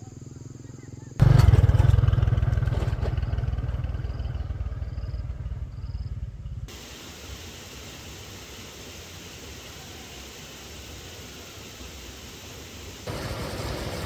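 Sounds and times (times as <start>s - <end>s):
engine running with low pulsing beat: 1.2s - 8.5s.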